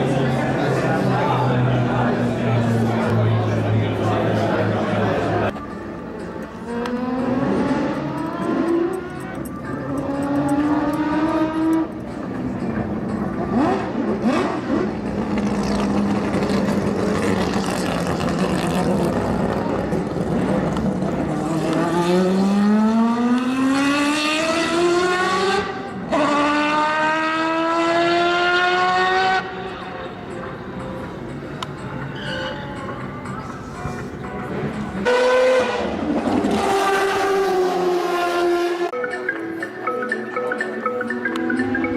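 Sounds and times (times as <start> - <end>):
car engine accelerating: 6.6 - 29.8.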